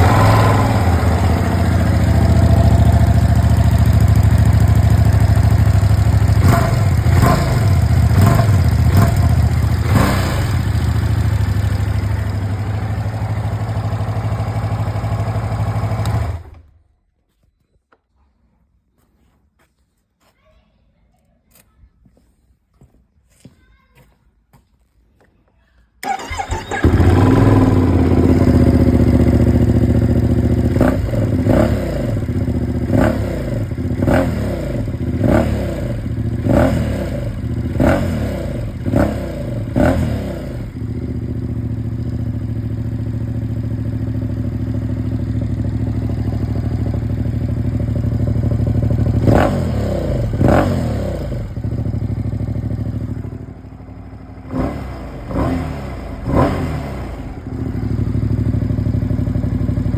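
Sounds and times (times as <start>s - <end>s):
motorcycle engine idling and revving: 0.0s - 16.8s, 26.0s - 59.9s.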